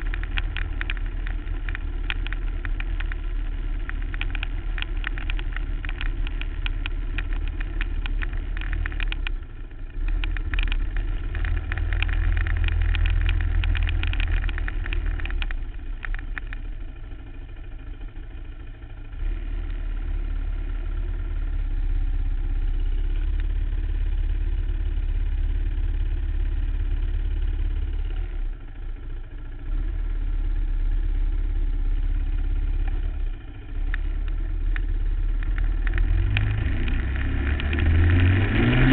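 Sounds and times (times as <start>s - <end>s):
rapid rattling clicks: 0.0s - 19.0s
quad engine revving: 33.8s - 38.9s.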